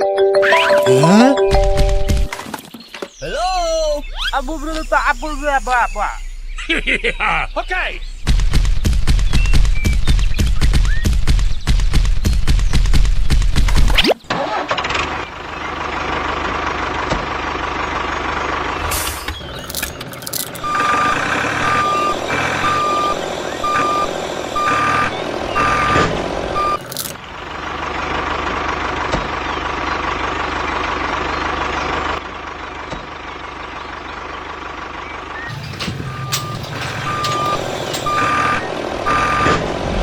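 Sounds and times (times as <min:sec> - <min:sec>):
reversing alarm beeping: 0:04.1 - 0:07.4, 0:20.6 - 0:26.8, 0:35.5 - 0:39.7
engine running: 0:14.3 - 0:40.0.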